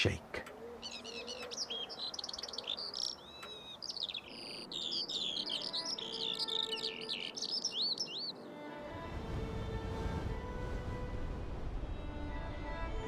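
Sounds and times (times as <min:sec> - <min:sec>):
skylark singing: 0:00.4 - 0:08.4.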